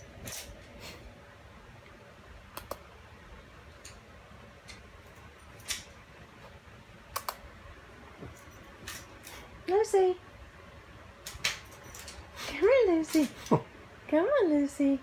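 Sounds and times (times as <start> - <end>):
sharp light clicks: 7.1 - 7.4.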